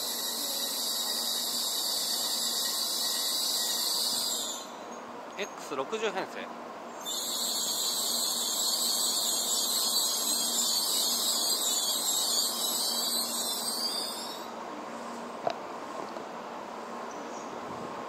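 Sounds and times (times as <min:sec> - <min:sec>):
train pulling out hissing: 0:00.0 - 0:05.0, 0:06.9 - 0:16.0.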